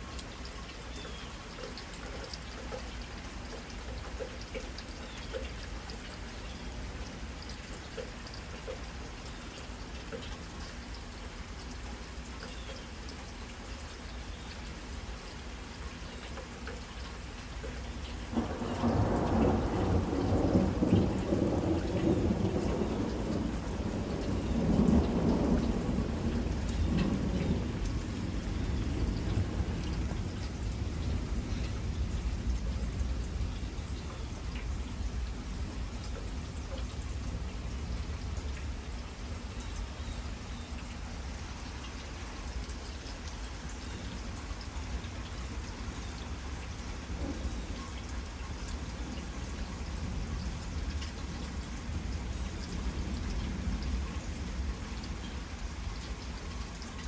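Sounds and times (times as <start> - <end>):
heavy rain: 0.0 - 57.0
raindrops ticking on a surface: 0.0 - 57.0
rolling thunder: 18.3 - 33.4.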